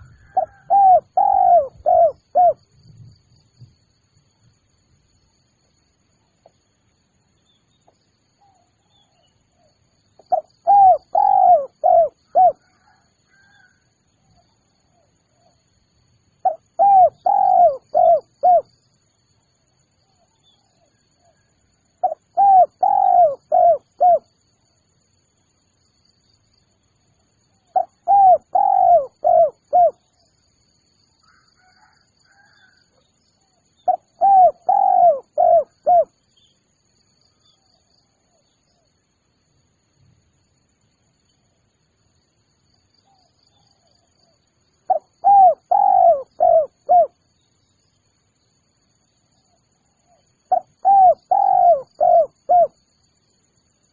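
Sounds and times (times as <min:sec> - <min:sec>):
dove cooing: 0:00.0 - 0:02.6, 0:10.2 - 0:13.7, 0:16.4 - 0:18.7, 0:22.0 - 0:24.3, 0:27.7 - 0:30.1, 0:33.8 - 0:36.1, 0:44.9 - 0:47.2, 0:50.5 - 0:52.8.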